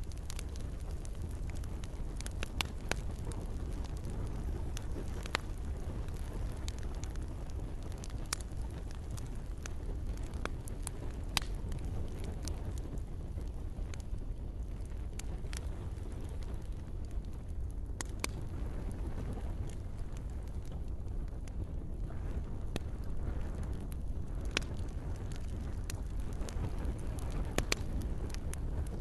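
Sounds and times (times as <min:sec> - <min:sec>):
campfire crackling: 0:00.0 - 0:29.0.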